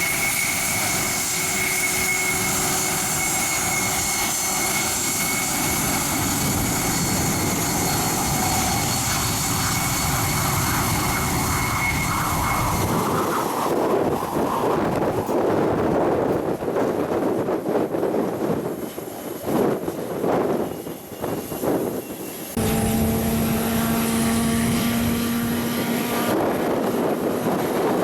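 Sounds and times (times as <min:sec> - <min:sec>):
airplane engines whining: 0:00.0 - 0:28.0
wind on microphone: 0:00.0 - 0:28.0
rushing noise: 0:22.5 - 0:28.0.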